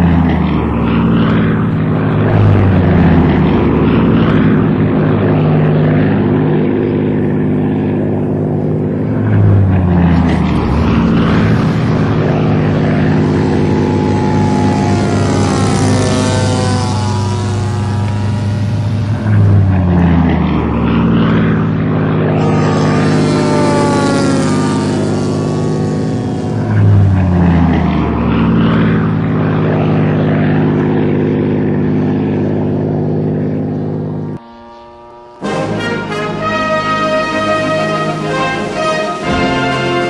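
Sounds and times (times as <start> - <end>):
model plane engine flying past: 0.0 - 40.0.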